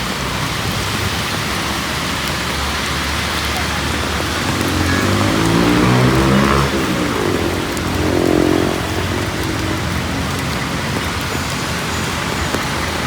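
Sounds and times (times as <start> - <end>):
rain on city street: 0.0 - 13.0.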